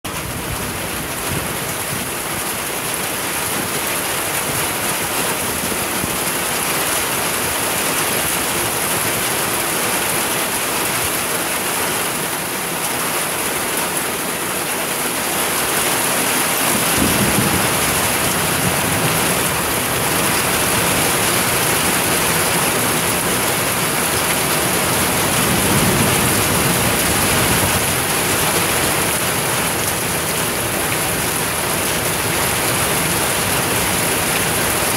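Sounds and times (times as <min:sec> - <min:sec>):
heavy rain pouring on pavement: 0:00.0 - 0:34.9
thunder rumbling: 0:16.4 - 0:34.9.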